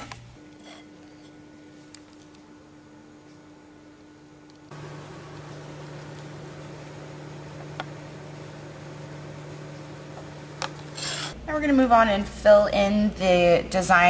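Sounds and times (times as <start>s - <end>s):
low hum with hiss: 0.0s - 14.0s.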